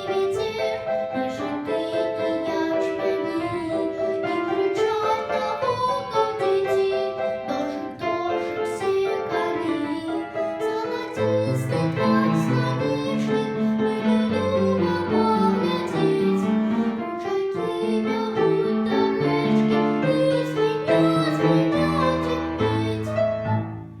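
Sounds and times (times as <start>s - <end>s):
piano melody: 0.0s - 24.0s
piano bass part: 9.6s - 24.0s.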